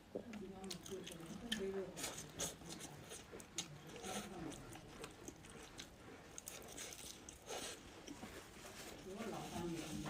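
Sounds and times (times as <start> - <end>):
person chewing food: 0.0 - 9.0.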